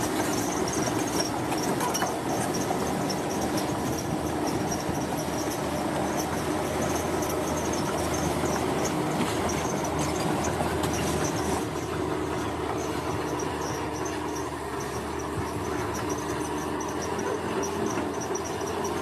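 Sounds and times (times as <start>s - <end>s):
heavy machinery rumbling: 0.0s - 19.0s.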